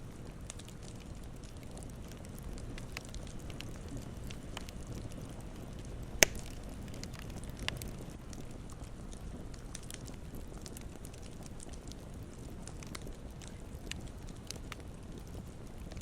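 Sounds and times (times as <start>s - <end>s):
campfire burning and crackling: 0.0s - 16.0s
campfire pop: 3.0s - 8.4s.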